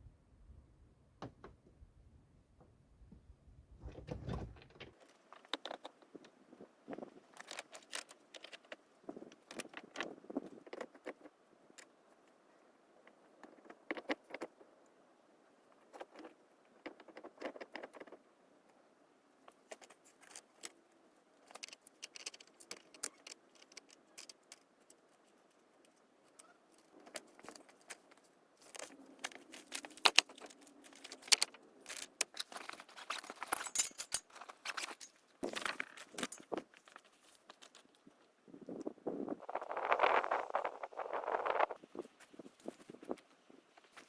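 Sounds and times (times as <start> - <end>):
small metal objects clinking: 27.0 - 36.6.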